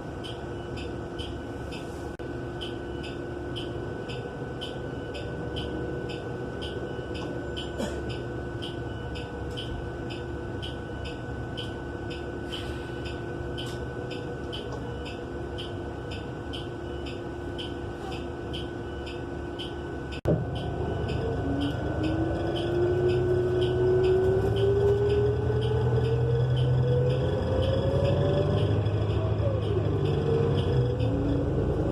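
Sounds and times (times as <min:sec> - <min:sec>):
bus engine rumbling: 0:00.0 - 0:31.9.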